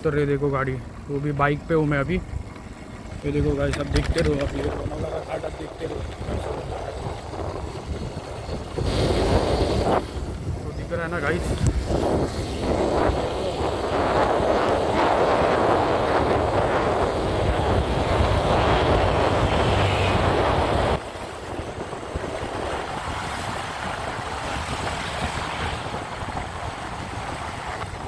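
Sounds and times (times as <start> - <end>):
road noise: 0.0 - 28.0
wind rushing over microphone: 0.0 - 28.0
motorcycle engine: 11.9 - 28.0.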